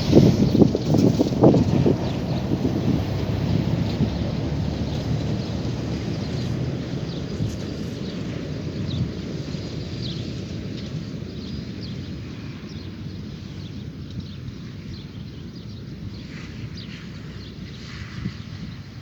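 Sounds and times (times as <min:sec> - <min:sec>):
steady low rumble: 0:00.0 - 0:09.9
birds chirping: 0:00.0 - 0:12.0.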